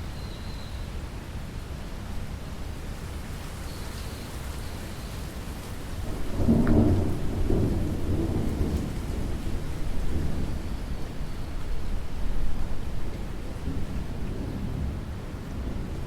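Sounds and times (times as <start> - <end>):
steady rainfall: 0.0 - 16.0
low rumble of thunder: 5.7 - 16.0.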